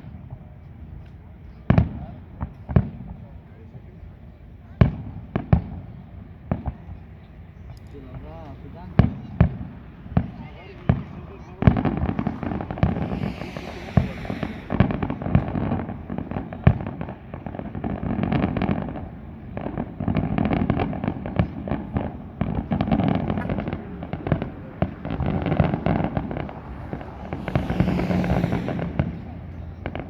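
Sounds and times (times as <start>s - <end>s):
continuous low rumble: 22.7s - 30.0s.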